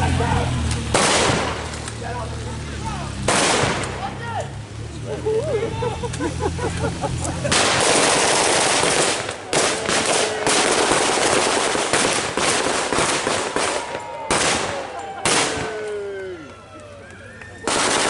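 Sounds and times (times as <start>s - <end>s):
machine gun bursts: 7.5s - 13.2s.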